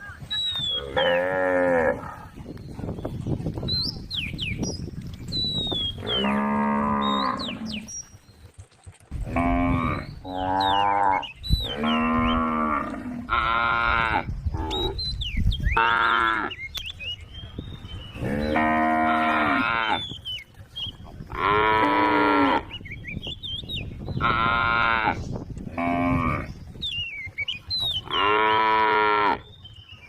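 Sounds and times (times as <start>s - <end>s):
cow mooing: 6.0s - 7.9s, 18.2s - 20.0s, 21.3s - 22.7s, 24.2s - 26.5s.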